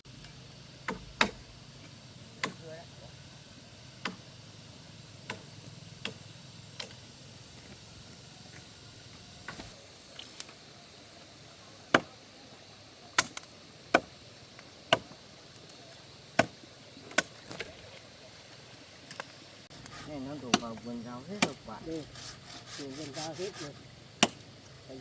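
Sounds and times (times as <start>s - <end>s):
wood chopping strikes: 0.1s - 2.7s, 4.0s - 4.3s, 5.2s - 7.0s, 9.4s - 10.6s, 11.9s - 12.2s, 13.2s - 15.8s, 16.4s - 17.8s, 19.1s - 24.7s.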